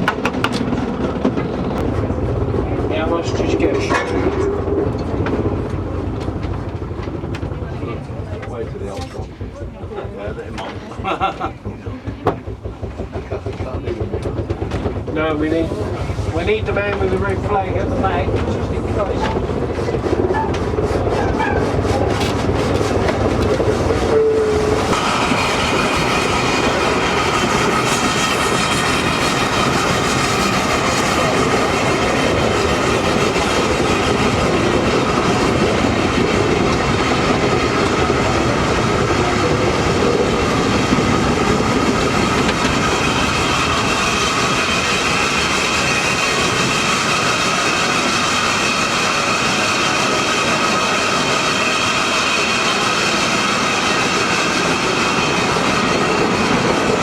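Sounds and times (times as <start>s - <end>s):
rail clatter: 0.0s - 57.0s
train rumbling on track: 0.0s - 57.0s.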